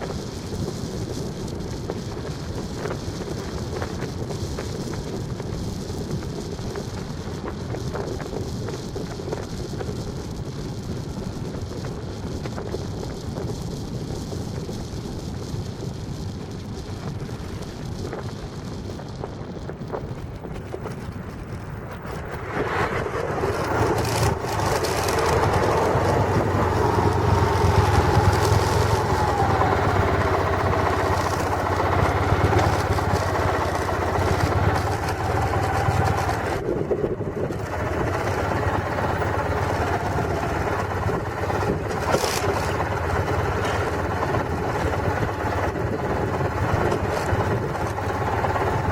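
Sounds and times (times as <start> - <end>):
vehicle road noise: 0.0 - 48.9
low hum: 19.8 - 48.9
slowly wavering whine: 22.1 - 36.6.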